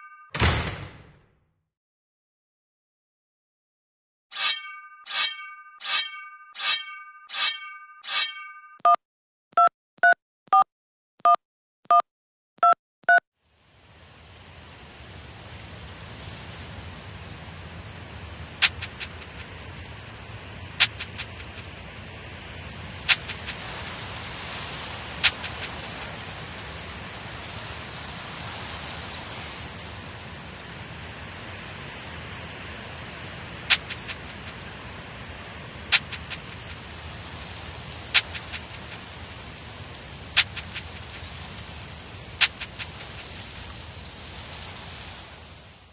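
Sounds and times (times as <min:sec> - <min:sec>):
telephone keypad beeps: 0:00.0 - 0:00.4, 0:09.6 - 0:12.0, 0:12.6 - 0:13.2
steady hiss: 0:13.5 - 0:45.9
sharp click: 0:18.6 - 0:19.4, 0:20.8 - 0:21.7, 0:23.1 - 0:23.6, 0:33.7 - 0:34.3, 0:35.9 - 0:36.7, 0:38.2 - 0:39.0, 0:40.4 - 0:41.0, 0:42.4 - 0:43.0.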